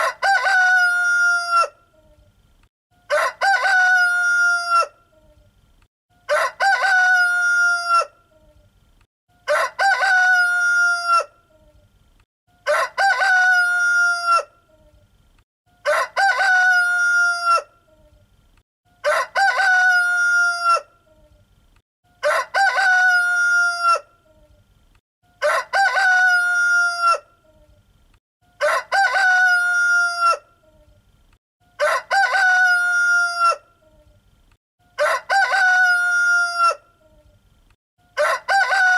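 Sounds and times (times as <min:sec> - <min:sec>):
rooster crowing: 0:00.0 - 0:01.8, 0:03.1 - 0:05.0, 0:06.3 - 0:08.2, 0:09.4 - 0:11.4, 0:12.6 - 0:14.5, 0:15.8 - 0:17.7, 0:19.0 - 0:20.9, 0:22.2 - 0:24.1, 0:25.4 - 0:27.3, 0:28.6 - 0:30.5, 0:31.7 - 0:33.7, 0:35.0 - 0:36.9, 0:38.1 - 0:38.9.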